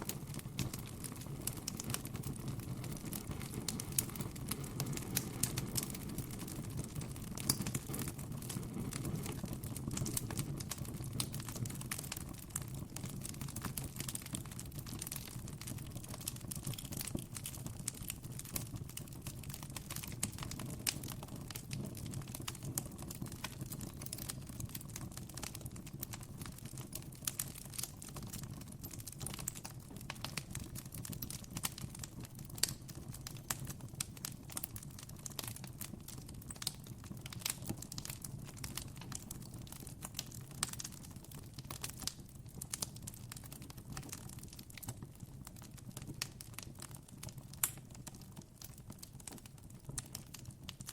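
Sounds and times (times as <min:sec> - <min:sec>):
campfire crackling and popping: 0:00.0 - 0:50.9
low fire rumble: 0:00.0 - 0:50.9.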